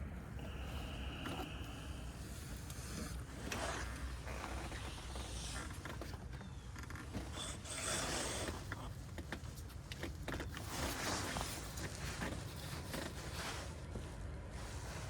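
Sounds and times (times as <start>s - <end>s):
low steady hum: 0.0s - 6.8s.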